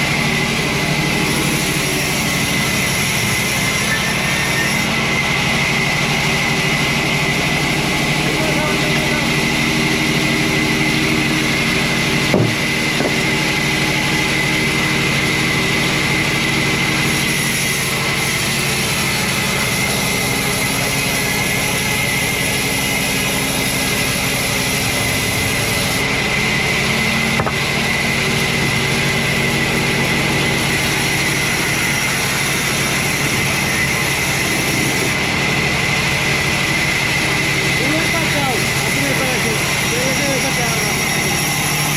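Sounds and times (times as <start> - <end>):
sawmill machinery whirring: 0.0 - 41.9
brief knock: 12.3 - 13.2.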